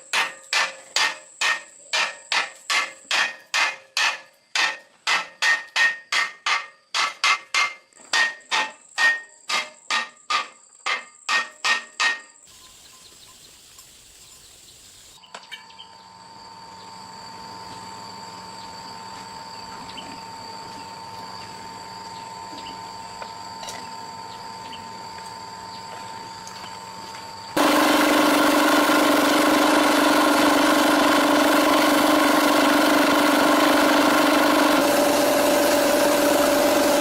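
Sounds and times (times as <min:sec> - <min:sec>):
hammer striking metal: 0:00.0 - 0:12.4.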